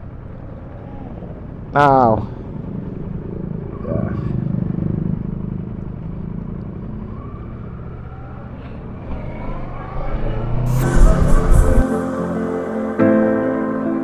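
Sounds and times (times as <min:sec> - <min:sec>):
vehicle engine and road rumble: 0:00.0 - 0:11.9
loud music: 0:10.7 - 0:14.0.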